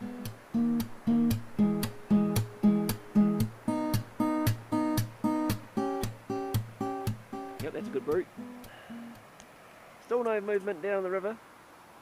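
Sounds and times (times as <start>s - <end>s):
acoustic guitar strumming: 0.0s - 9.2s.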